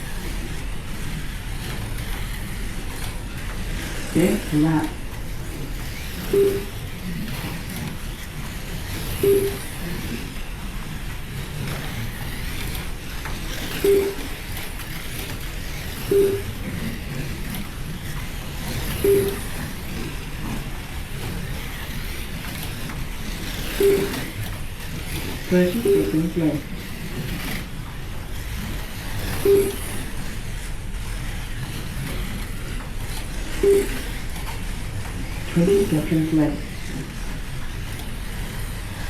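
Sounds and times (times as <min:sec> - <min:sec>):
slot cars whirring: 0:00.0 - 0:39.0
short timing beeps: 0:06.3 - 0:06.8, 0:09.2 - 0:09.8, 0:13.8 - 0:14.4, 0:16.1 - 0:16.7, 0:19.0 - 0:19.6, 0:23.8 - 0:24.3, 0:25.6 - 0:26.5, 0:29.4 - 0:30.0, 0:33.6 - 0:34.1, 0:35.6 - 0:36.4.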